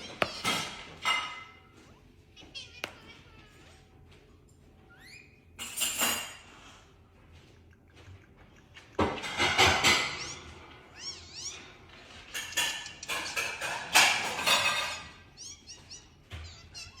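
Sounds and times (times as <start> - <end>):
parrot chirping: 8.9 - 17.0
parrot squawking: 9.0 - 17.0.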